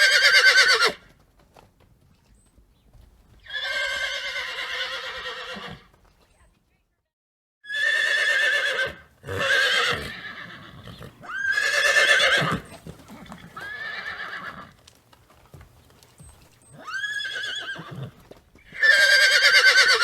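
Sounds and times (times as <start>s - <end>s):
farm animal calling: 7.7s - 14.8s, 15.8s - 20.0s.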